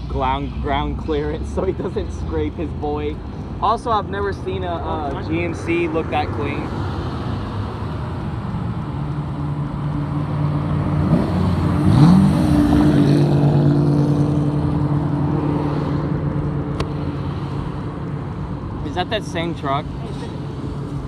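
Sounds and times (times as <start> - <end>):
traffic passing: 0.0 - 21.0
car engine revving past: 10.4 - 16.2.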